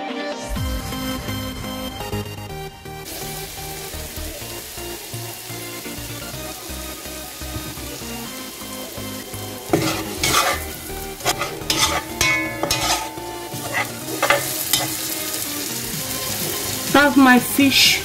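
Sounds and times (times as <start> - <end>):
food sizzling in oil: 2.9 - 18.0
spatula scraping pot: 9.7 - 15.1.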